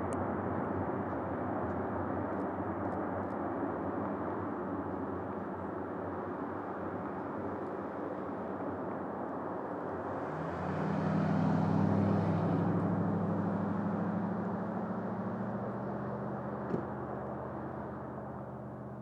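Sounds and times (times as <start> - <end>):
engine passing by: 10.0 - 18.0.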